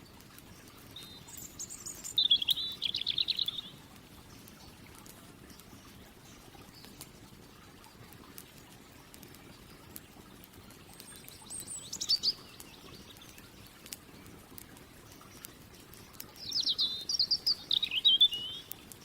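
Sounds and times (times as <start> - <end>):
faint clicks: 0.0 - 19.0
outdoor background: 0.0 - 19.0
songbird warbling trill: 0.9 - 3.8, 11.1 - 13.4, 16.4 - 18.8.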